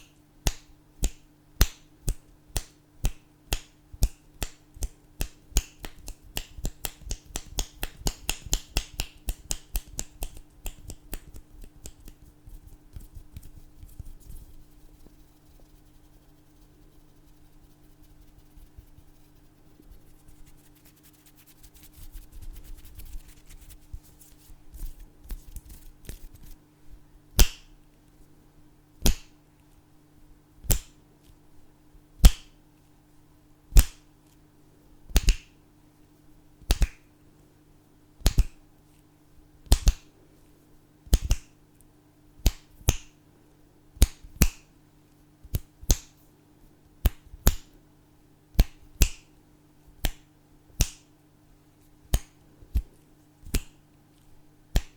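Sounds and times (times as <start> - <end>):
fingers snapping: 0.4 - 14.0, 27.4 - 27.7, 29.0 - 29.4, 30.7 - 31.0, 32.2 - 32.6, 33.7 - 34.1, 35.1 - 35.6, 36.7 - 37.1, 38.2 - 38.6, 39.7 - 40.1, 41.1 - 41.6, 42.4 - 43.2, 44.0 - 44.7, 45.5 - 46.2, 47.0 - 47.8, 48.6 - 49.3, 50.0 - 51.1, 52.1 - 53.8
soft rustling: 12.0 - 27.0.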